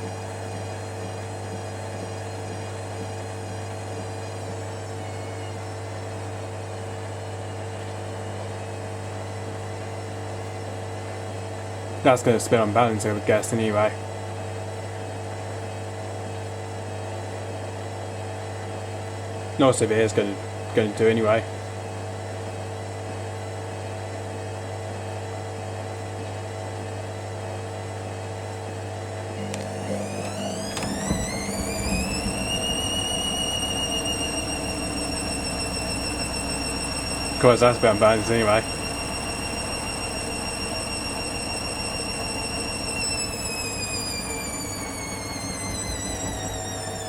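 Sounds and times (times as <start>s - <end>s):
washing machine drum motor humming: 0.0s - 14.7s, 28.4s - 47.0s.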